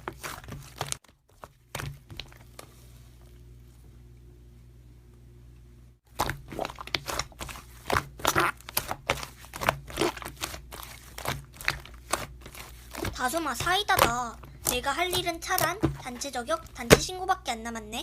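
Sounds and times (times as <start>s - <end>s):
faint steady hum: 0.0s - 18.0s
slime crackling and popping: 6.1s - 17.1s.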